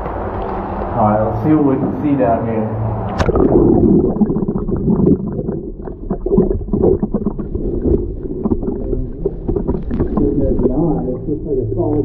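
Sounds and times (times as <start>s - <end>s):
muffled underwater gurgling: 3.1s - 12.0s.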